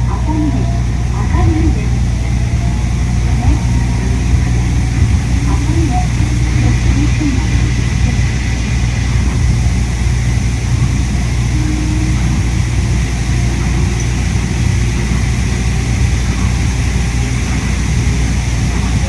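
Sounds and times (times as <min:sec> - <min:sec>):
air-conditioning noise: 0:00.0 - 0:19.0
monorail running drone: 0:00.0 - 0:19.0.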